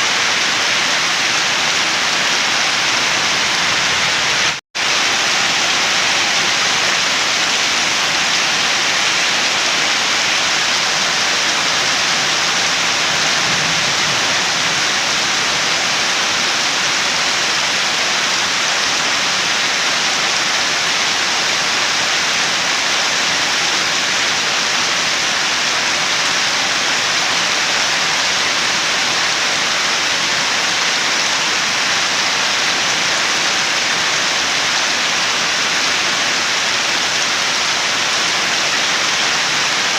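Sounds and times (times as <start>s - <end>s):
heavy rainfall hiss: 0.0s - 39.9s.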